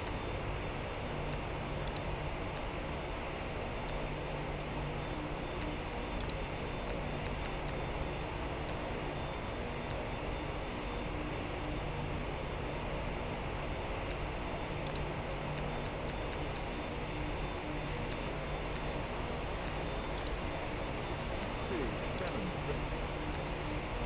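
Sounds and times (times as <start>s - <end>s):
jet engines droning: 16.6s - 24.0s.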